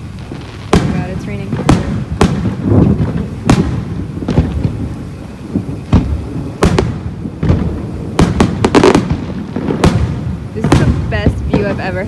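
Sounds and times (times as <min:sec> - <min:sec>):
fireworks shells bursting: 0:00.0 - 0:12.0
rumble of distant bursts: 0:00.0 - 0:12.0.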